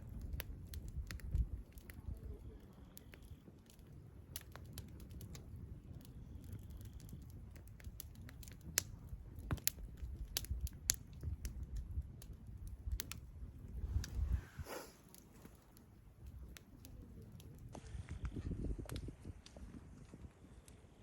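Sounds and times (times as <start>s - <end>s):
sharp clicks and crackles: 0.0s - 14.2s, 15.0s - 20.8s
low steady rumble: 11.3s - 18.3s.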